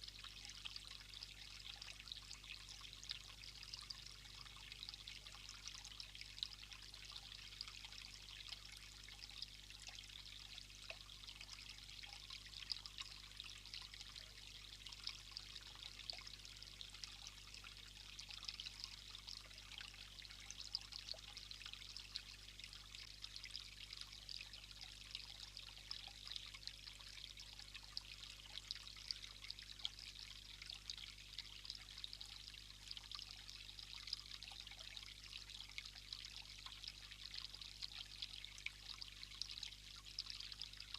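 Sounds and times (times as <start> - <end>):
low steady hum: 0.0 - 40.9
trickle of running water: 0.0 - 40.9.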